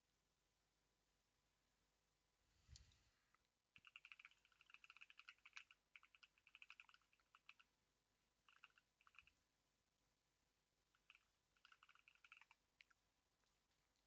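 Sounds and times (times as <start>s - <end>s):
typing on computer keyboard: 3.8s - 7.6s, 8.5s - 9.3s, 11.0s - 12.9s.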